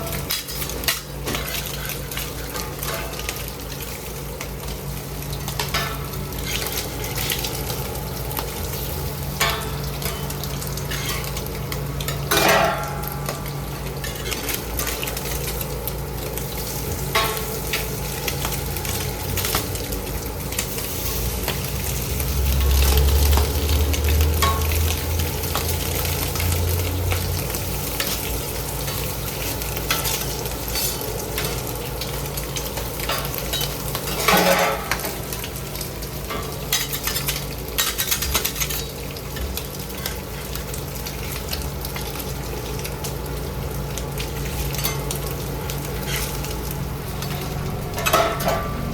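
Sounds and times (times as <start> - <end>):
metal utensils clicking and scraping: 0.0 - 4.0, 5.4 - 7.5, 9.4 - 15.7, 27.4 - 35.5, 36.2 - 40.2, 44.4 - 48.8
food sizzling on a griddle: 0.0 - 48.9.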